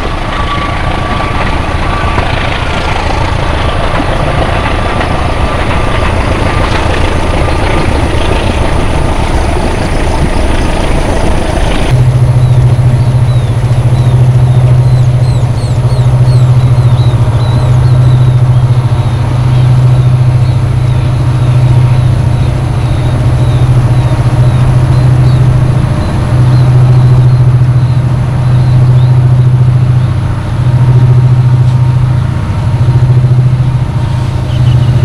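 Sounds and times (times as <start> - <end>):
diesel locomotives droning: 0.0 - 35.0
passenger train rumbling: 0.0 - 35.0
birds chirping: 12.4 - 30.2.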